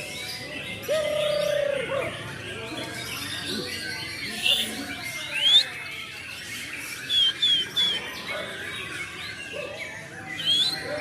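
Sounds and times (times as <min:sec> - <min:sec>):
bird whistling song: 0:04.2 - 0:05.9, 0:06.5 - 0:08.4, 0:10.3 - 0:11.0.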